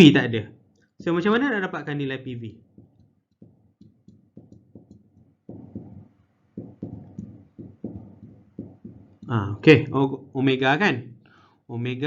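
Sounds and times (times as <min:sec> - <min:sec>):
soft dull taps: 0:02.5 - 0:09.5.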